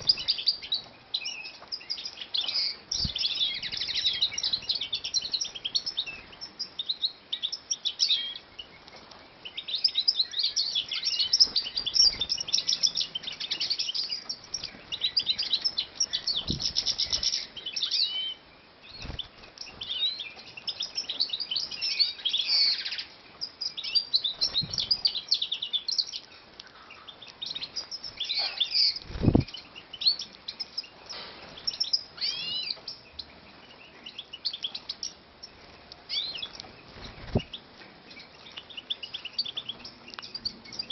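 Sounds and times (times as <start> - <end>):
finches twittering: 0.0 - 8.5, 9.5 - 26.1.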